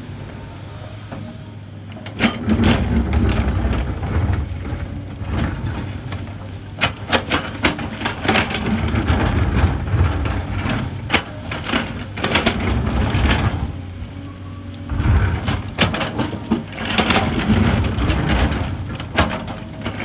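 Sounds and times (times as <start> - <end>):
excavator diesel engine running: 0.0 - 20.0
sharp knocks and clatters: 14.9 - 20.0.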